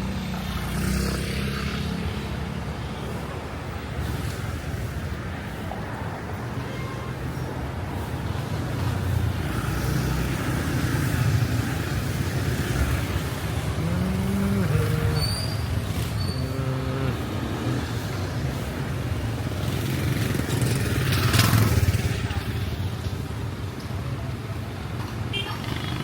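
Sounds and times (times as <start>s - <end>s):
street traffic rumble: 0.0s - 26.0s
vehicle passing loudly: 9.3s - 22.3s.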